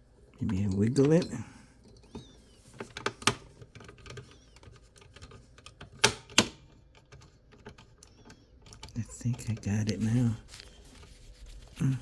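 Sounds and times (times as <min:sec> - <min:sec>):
tool clicking inside computer case: 0:02.0 - 0:09.9.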